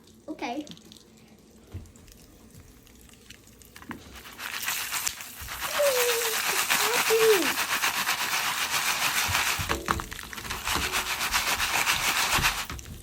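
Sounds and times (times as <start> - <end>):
popcorn pan scraping and rattling: 3.8 - 13.0.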